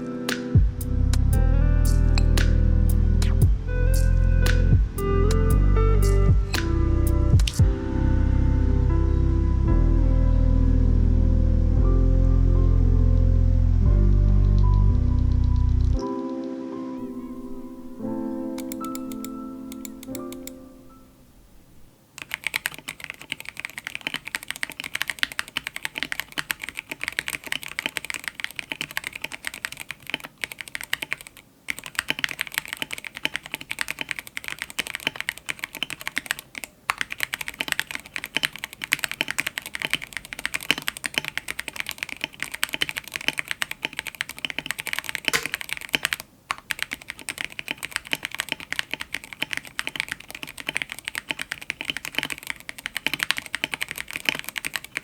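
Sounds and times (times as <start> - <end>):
mechanical keyboard typing: 17.0 - 20.6, 22.2 - 55.0.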